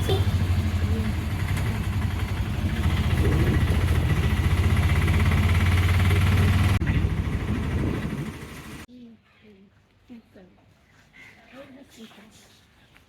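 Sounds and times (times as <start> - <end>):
auto-rickshaw engine running: 0.0 - 8.9
road noise: 0.0 - 8.9.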